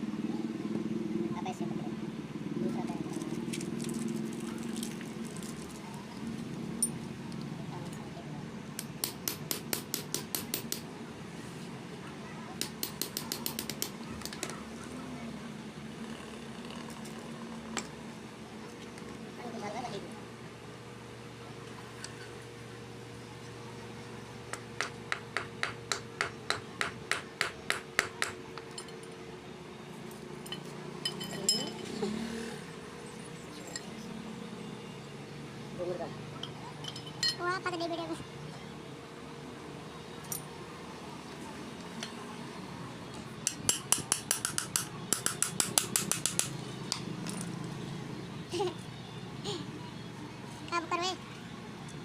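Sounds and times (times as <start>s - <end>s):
hammer striking metal: 8.8s - 10.8s, 12.6s - 14.4s, 43.4s - 47.0s
metal clinks: 30.4s - 31.9s, 36.4s - 37.4s.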